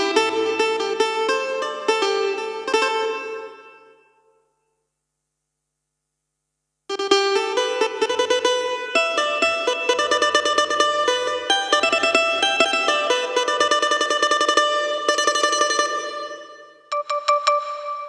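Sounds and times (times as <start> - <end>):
keyboard plucked-string notes: 9.4 - 18.0.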